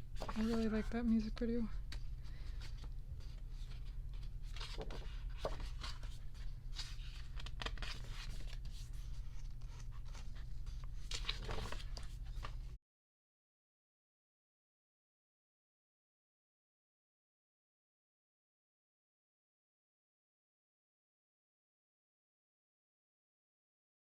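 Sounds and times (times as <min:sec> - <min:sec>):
book pages rustling: 0:00.0 - 0:00.8, 0:01.8 - 0:12.8.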